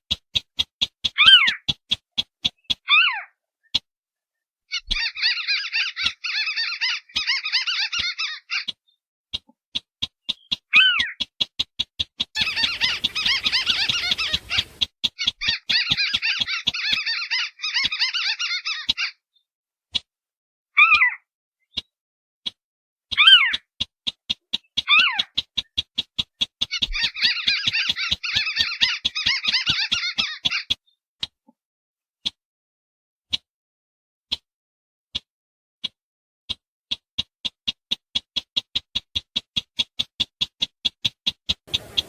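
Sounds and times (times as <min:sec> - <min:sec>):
harsh bird chattering: 0:04.7 - 0:08.8, 0:10.1 - 0:19.2, 0:23.2 - 0:30.9, 0:40.9 - 0:42.0
rapid sharp ticking clicks: 0:09.8 - 0:18.0, 0:23.6 - 0:30.8, 0:36.9 - 0:42.0.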